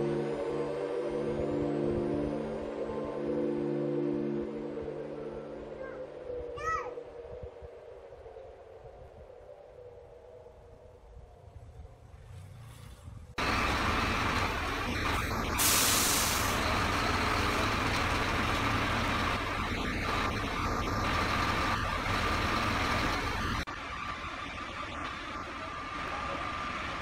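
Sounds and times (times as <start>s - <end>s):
heavy truck running: 12.7s - 27.0s
air hiss: 15.1s - 16.8s.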